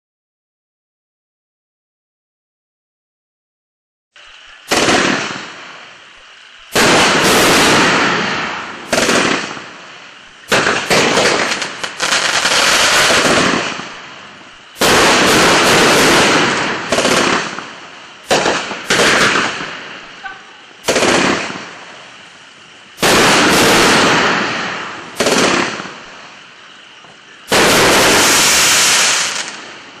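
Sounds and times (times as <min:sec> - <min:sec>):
firework crackle and sizzle: 0:04.1 - 0:30.0
firework shells bursting: 0:04.2 - 0:30.0.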